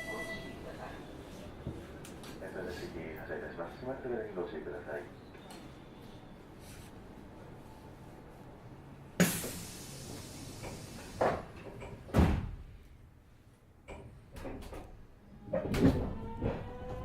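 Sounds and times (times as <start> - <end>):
train door hiss: 9.2 - 12.6
heavy door knocks and thuds: 12.1 - 12.6.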